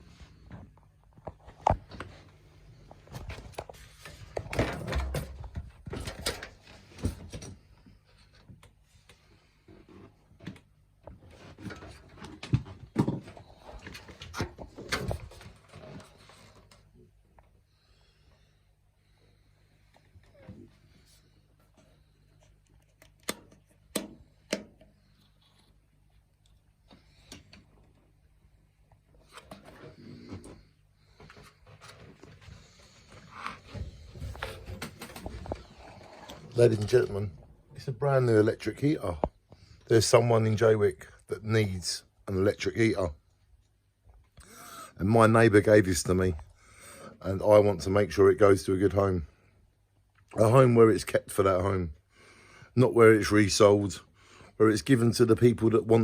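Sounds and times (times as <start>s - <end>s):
objects knocking and clattering: 11.4s - 16.0s.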